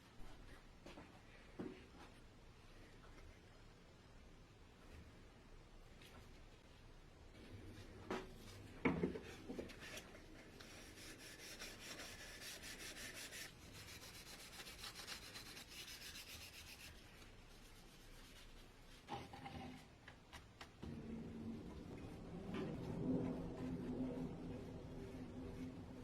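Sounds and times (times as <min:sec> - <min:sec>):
sandpaper rubbing strokes: 0:10.4 - 0:18.9.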